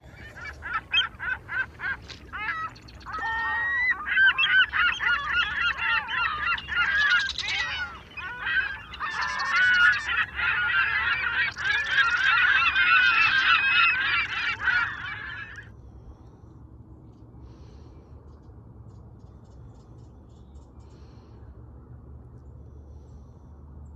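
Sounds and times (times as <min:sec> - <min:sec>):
geese honking: 0:00.0 - 0:15.6.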